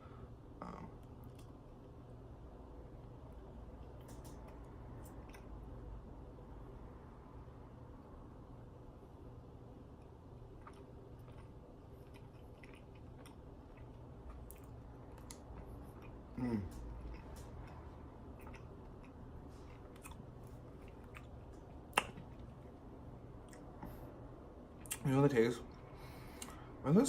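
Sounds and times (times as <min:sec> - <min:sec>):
closed-mouth hum: 0:00.0 - 0:27.0
person chewing soft candy: 0:03.8 - 0:05.7, 0:10.0 - 0:24.1
wet mouth clicks: 0:20.8 - 0:22.5, 0:24.8 - 0:25.0.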